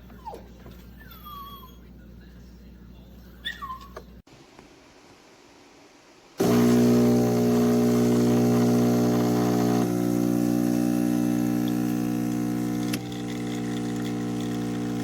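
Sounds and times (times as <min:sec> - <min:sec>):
espresso machine pump humming: 0:06.4 - 0:15.0.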